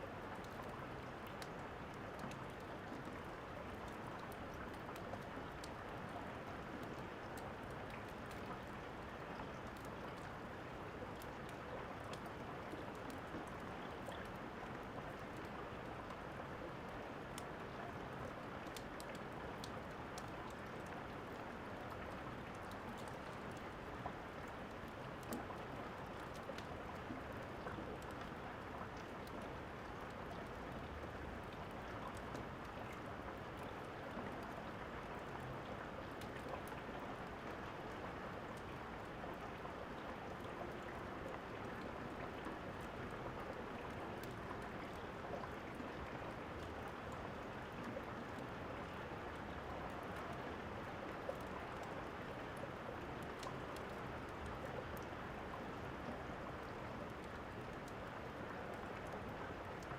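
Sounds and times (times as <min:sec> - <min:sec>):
steady rain: 0:00.0 - 0:59.9
fireplace crackling and popping: 0:18.7 - 0:20.3.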